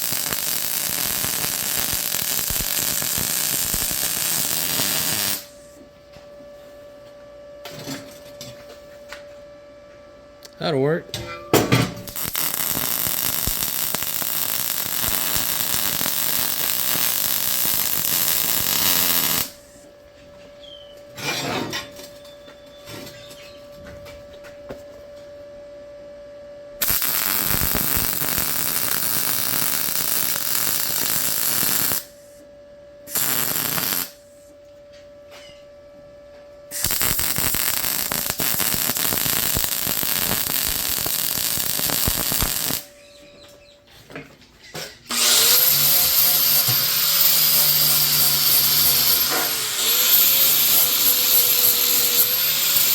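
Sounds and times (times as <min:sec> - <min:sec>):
welding arc crackling: 0:00.0 - 0:05.6, 0:12.0 - 0:19.8, 0:26.8 - 0:32.2, 0:33.1 - 0:34.2, 0:36.7 - 0:42.9, 0:45.1 - 0:52.9
steady hum: 0:00.0 - 0:22.7, 0:23.6 - 0:43.5.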